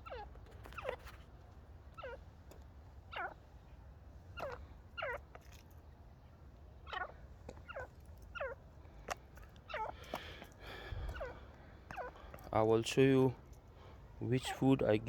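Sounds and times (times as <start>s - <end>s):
francolin calling: 6.9s - 8.6s, 9.7s - 12.3s.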